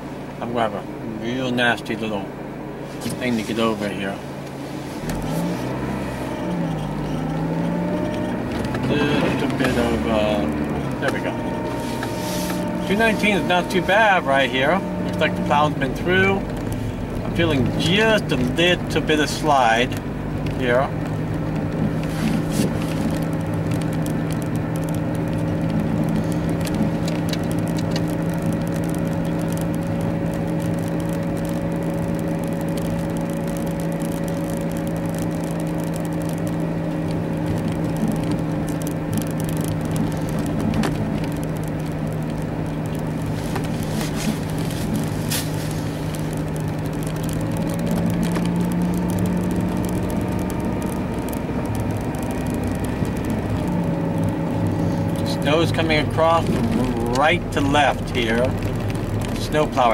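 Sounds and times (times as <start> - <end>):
car engine drone: 0.0 - 59.9
tyre and road noise: 0.0 - 59.9
faint clicks: 19.2 - 59.9.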